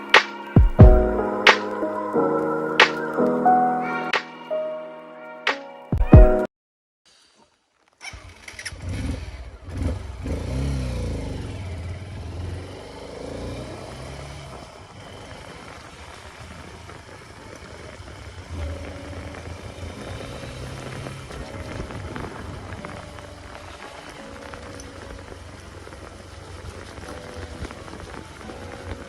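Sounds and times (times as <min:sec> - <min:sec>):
dirt bike engine revving: 0:08.1 - 0:28.4.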